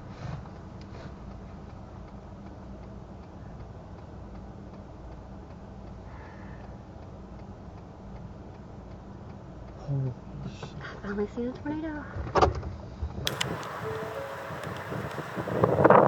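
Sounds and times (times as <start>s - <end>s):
faint regular ticking: 0.5s - 9.8s, 13.3s - 16.0s
low rumble in vehicle cabin: 13.2s - 16.0s.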